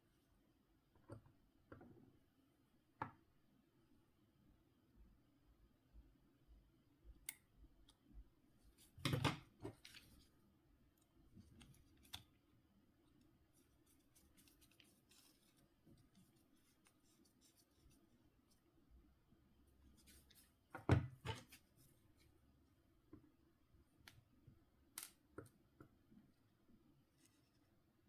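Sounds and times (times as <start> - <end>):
small clicks of phone parts: 25.0 - 25.2.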